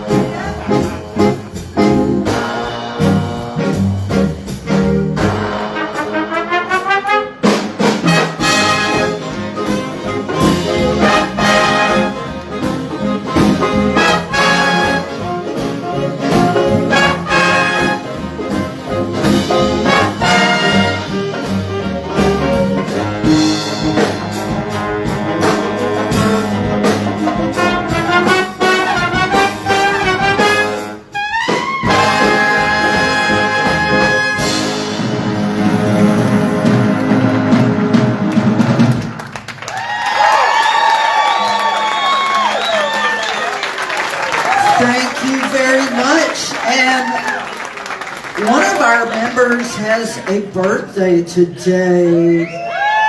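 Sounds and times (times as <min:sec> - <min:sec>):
jazz big band playing: 0:00.0 - 0:52.4.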